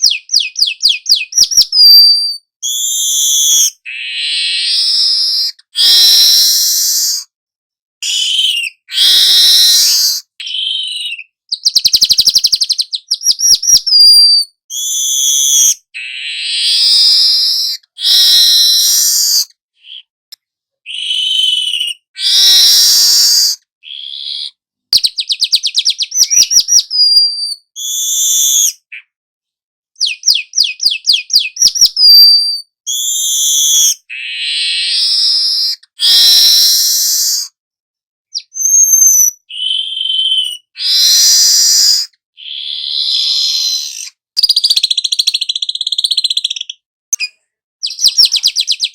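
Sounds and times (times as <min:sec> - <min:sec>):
weaver bird singing trills: 0:00.0 - 0:07.2, 0:08.0 - 0:20.1, 0:20.9 - 0:24.4, 0:25.0 - 0:29.1, 0:30.0 - 0:37.4, 0:38.3 - 0:48.9.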